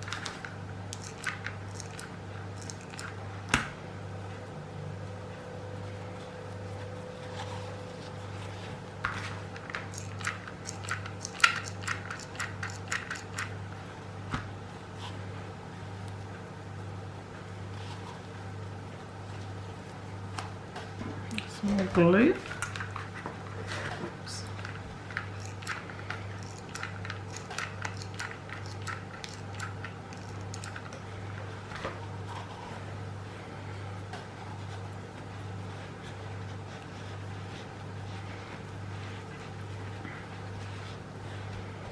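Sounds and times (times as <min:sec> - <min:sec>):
steady low hum: 0:00.0 - 0:41.9
light clicks and taps of tools: 0:24.6 - 0:31.0.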